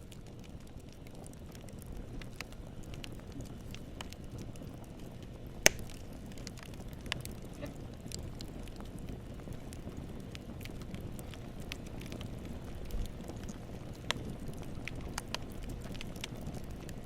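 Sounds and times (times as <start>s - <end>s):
campfire burning: 0.0s - 17.0s
wood crackling: 0.0s - 17.0s
loud sharp pop: 5.6s - 5.9s.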